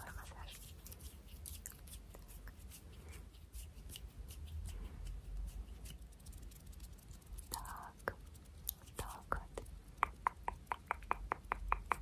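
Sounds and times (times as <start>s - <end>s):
hands rubbing and fluttering: 0.0s - 9.3s.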